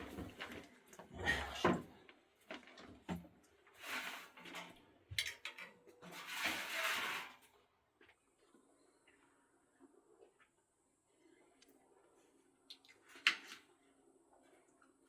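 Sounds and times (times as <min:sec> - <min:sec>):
scraping or rubbing: 0:03.8 - 0:04.6, 0:06.1 - 0:07.4.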